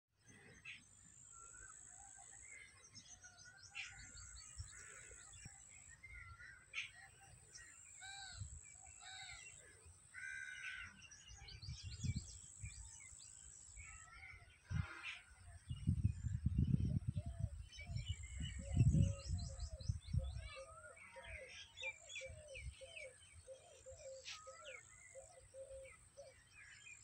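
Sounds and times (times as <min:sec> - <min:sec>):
birds chirping: 0:00.2 - 0:27.0
wind rumble on microphone: 0:11.4 - 0:13.0, 0:14.6 - 0:20.8.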